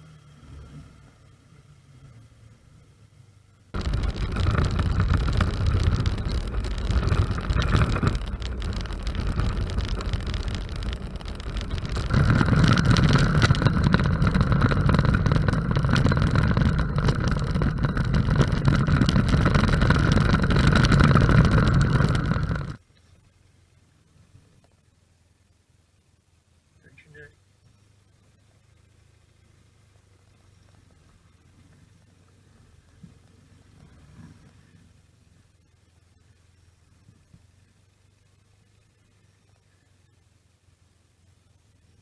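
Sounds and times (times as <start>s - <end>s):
motorcycle engine: 3.8s - 22.8s
wind noise: 3.8s - 22.8s.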